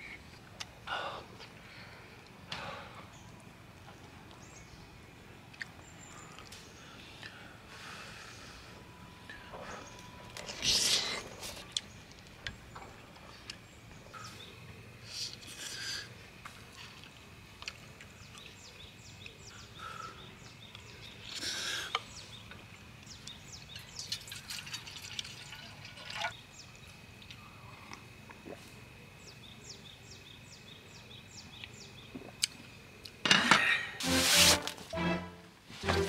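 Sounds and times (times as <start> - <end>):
birds chirping: 2.6 - 16.0, 17.8 - 24.3.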